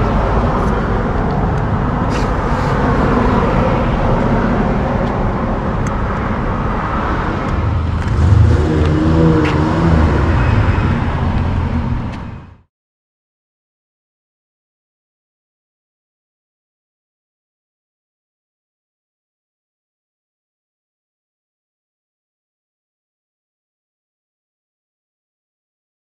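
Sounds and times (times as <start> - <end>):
road traffic passing: 0.0 - 12.7
vehicle engine rumbling: 0.0 - 12.7.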